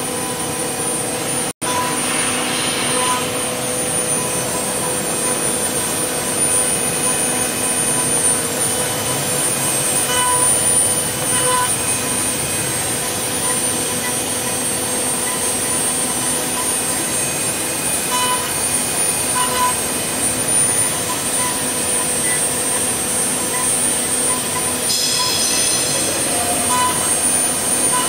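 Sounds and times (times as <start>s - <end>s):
higher whine: 0.0s - 28.0s
lathe spindle whine: 0.0s - 28.0s
hiss of wood cutting: 1.9s - 5.0s.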